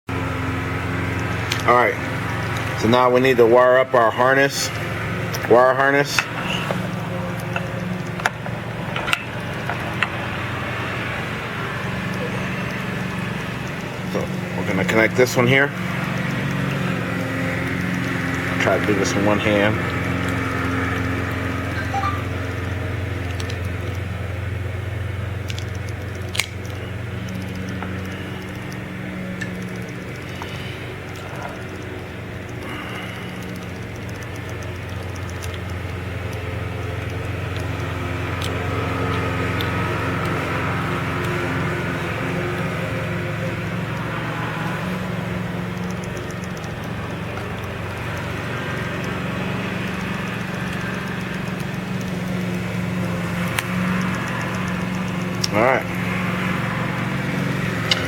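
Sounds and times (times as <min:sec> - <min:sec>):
steady low hum: 0:00.1 - 0:58.0
plastic connectors clicking: 0:25.4 - 0:28.8.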